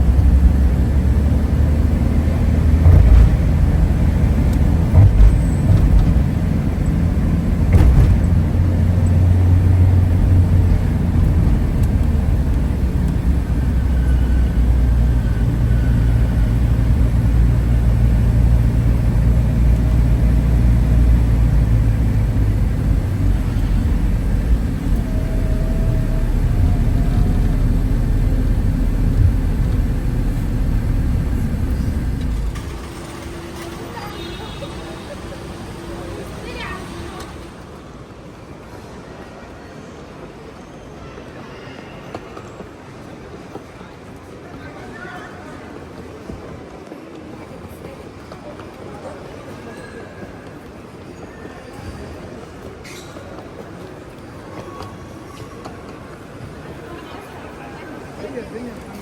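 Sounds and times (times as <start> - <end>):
vehicle engine rumble: 0.0 - 37.8.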